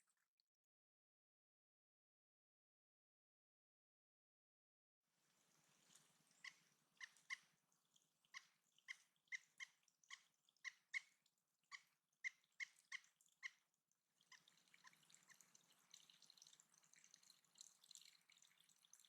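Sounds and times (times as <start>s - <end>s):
faint trickle of water: 0.0s - 0.5s, 5.1s - 19.0s.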